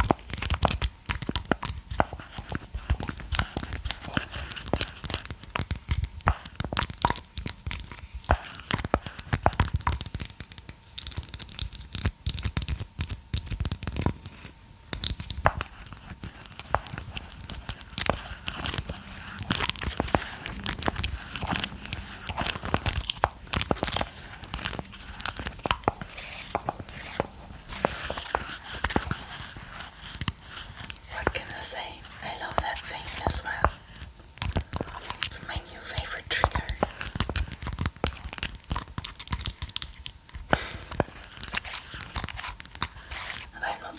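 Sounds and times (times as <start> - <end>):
packaging clicks and crinkles: 0.0 - 43.6
packaging tearing: 15.2 - 31.0, 36.9 - 43.5.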